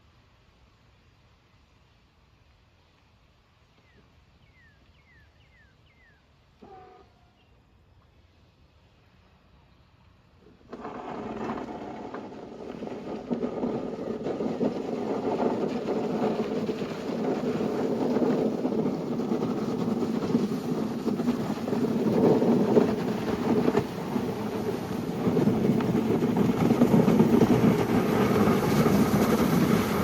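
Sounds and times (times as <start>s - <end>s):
snow-clearing machine engine clattering: 10.4s - 30.0s.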